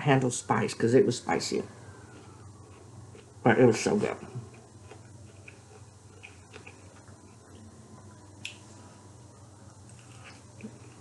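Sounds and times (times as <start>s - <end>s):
person chewing food: 1.9s - 3.4s, 4.4s - 7.8s, 9.8s - 11.0s.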